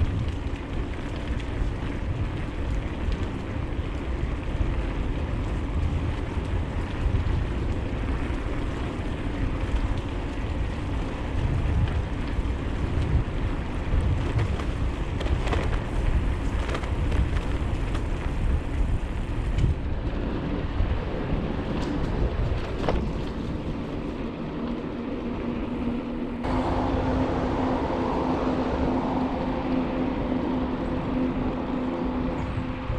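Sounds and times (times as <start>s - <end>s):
bicycle tyre noise on trail: 0.0s - 32.9s
wind rumbling on microphone: 0.0s - 32.9s
steady hum: 24.9s - 32.9s.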